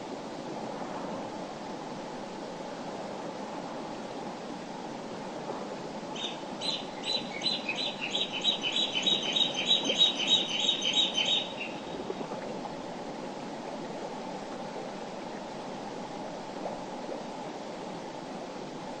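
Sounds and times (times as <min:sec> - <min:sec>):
songbird singing high notes: 0:06.2 - 0:11.9.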